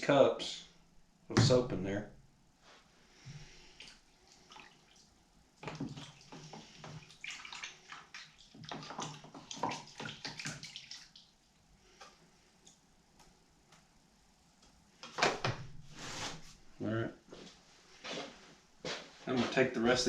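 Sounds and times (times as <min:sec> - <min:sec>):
detergent splashing into water: 0:05.6 - 0:11.3.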